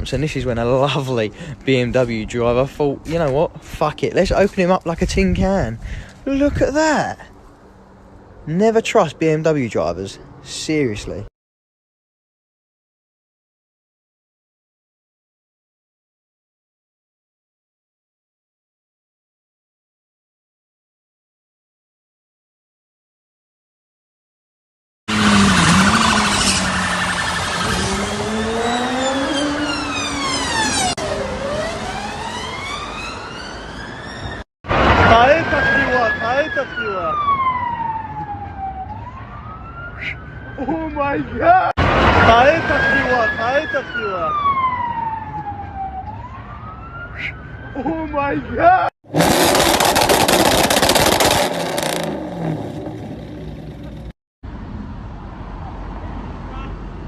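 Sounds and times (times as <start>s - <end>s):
road traffic noise: 0.0s - 11.3s, 25.1s - 57.0s
emergency siren wailing: 25.1s - 48.9s.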